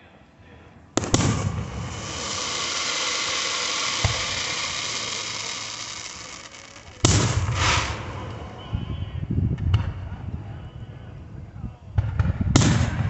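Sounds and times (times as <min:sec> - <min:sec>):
fireworks hissing and crackling: 0:01.0 - 0:09.6
fireworks bangs: 0:01.0 - 0:10.5, 0:12.0 - 0:13.0.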